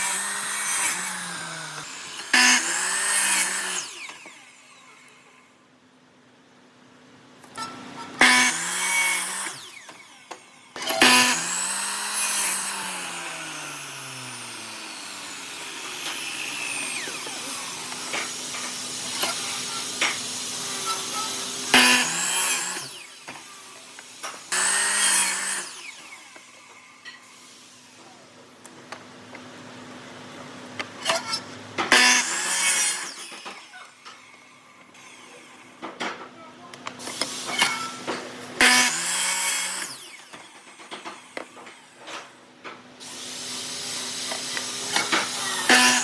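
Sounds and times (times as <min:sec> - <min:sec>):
electric power tool motor: 0:00.0 - 0:05.4, 0:08.2 - 0:28.0, 0:31.0 - 0:34.1, 0:37.0 - 0:42.2, 0:43.0 - 0:46.0.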